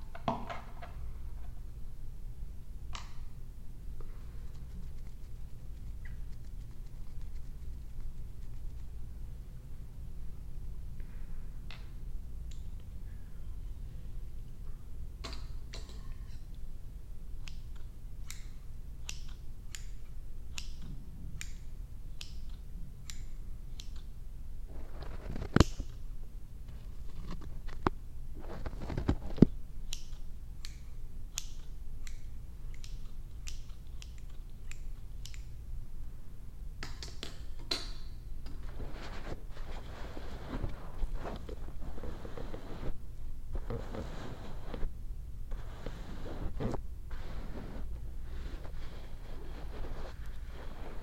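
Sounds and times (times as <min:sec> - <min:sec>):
scissors snipping: 0:17.4 - 0:21.6, 0:29.9 - 0:35.6.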